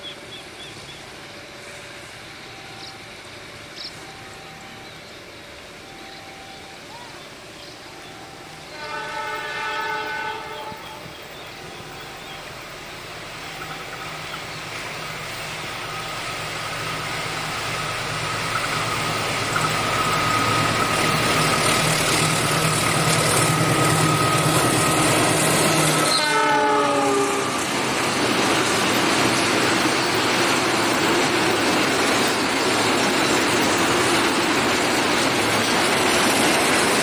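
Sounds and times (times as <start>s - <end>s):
diesel engine and train wheels: 0.0s - 37.0s
locomotive horn: 8.1s - 12.3s, 22.9s - 27.7s.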